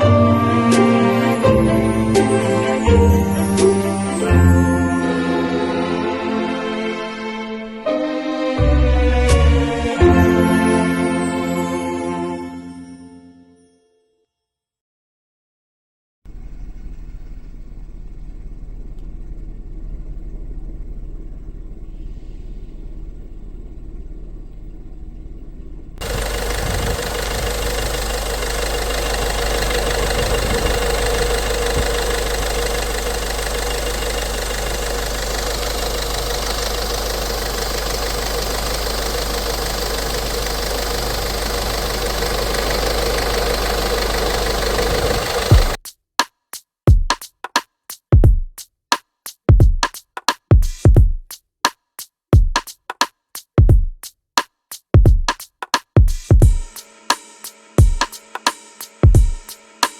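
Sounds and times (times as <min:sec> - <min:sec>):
diesel engine idling: 0:22.6 - 0:45.8.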